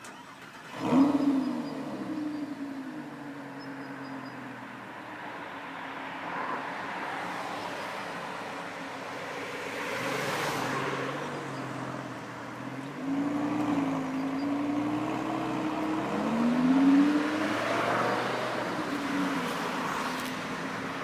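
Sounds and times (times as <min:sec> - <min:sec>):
sports car engine revving: 0:00.5 - 0:04.0, 0:10.1 - 0:21.0.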